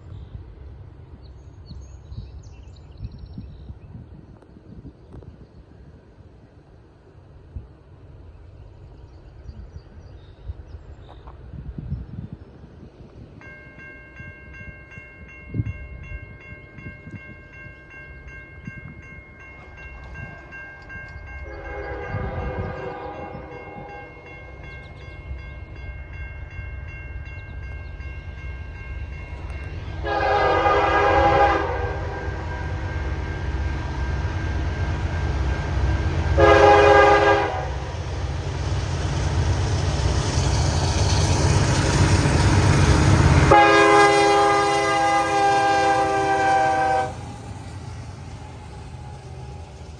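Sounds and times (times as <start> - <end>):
diesel train rumble: 0.0 - 49.9
locomotive air horn blasts: 21.4 - 24.3, 30.0 - 33.1, 36.4 - 37.9, 43.4 - 47.2.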